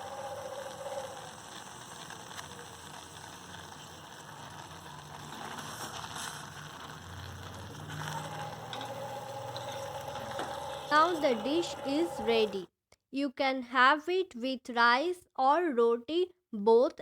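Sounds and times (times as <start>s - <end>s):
paste sizzling in oil: 0.0s - 12.6s.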